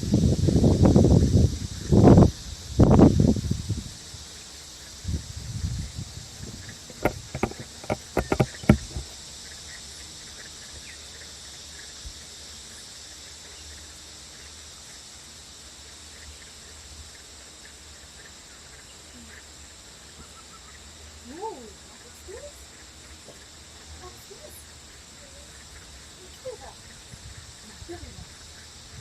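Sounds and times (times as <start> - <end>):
high-pitched insect chorus: 0.0 - 29.0
sharp clicks and knocks: 6.4 - 9.2.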